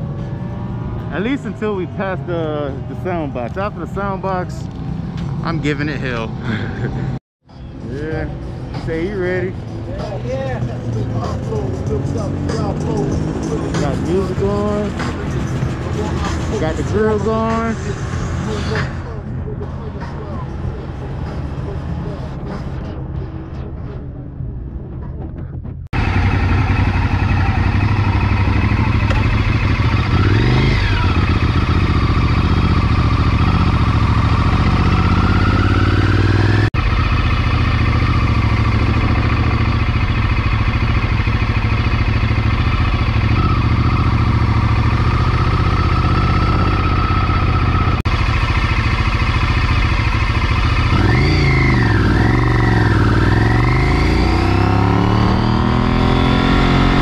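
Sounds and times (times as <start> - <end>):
motorcycle engine running hard: 26.0 - 57.0.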